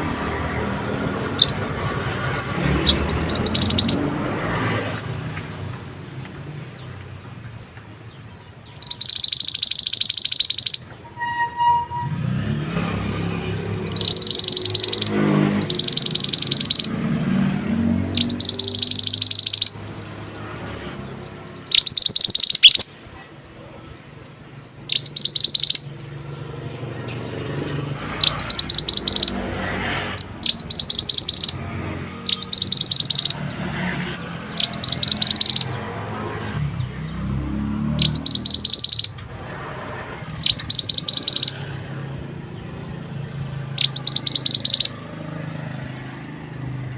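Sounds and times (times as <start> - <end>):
songbird trilling: 1.3 - 1.7, 2.7 - 4.1, 8.6 - 11.0, 13.5 - 17.0, 18.1 - 23.0, 24.8 - 27.4, 28.1 - 29.4, 30.2 - 33.5, 34.4 - 35.8, 38.0 - 39.3, 40.3 - 41.7, 43.6 - 46.9.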